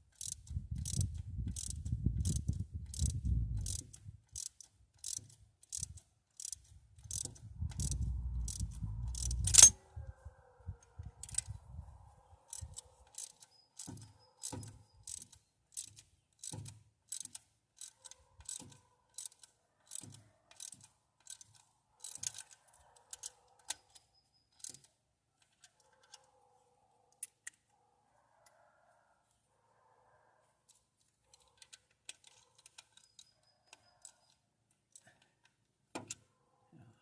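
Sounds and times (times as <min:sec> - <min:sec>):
hand ratchet clicking: 0:00.0 - 0:09.7, 0:12.5 - 0:24.0, 0:24.6 - 0:24.9.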